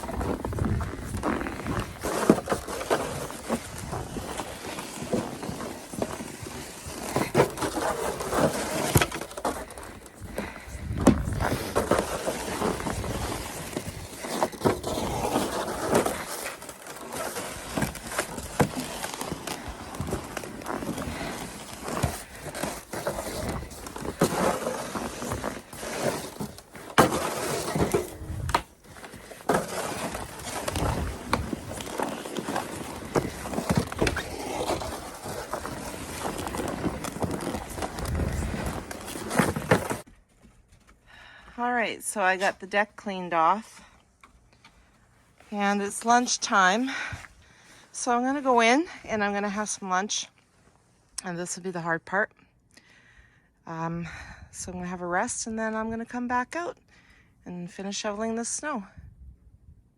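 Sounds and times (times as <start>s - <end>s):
snow shovel scraping snow: 0.0s - 40.0s
crunching footsteps: 0.0s - 40.9s.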